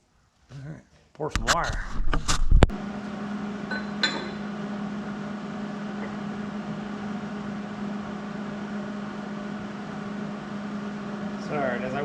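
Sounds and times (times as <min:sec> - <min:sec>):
low welder hum: 0:01.4 - 0:12.0.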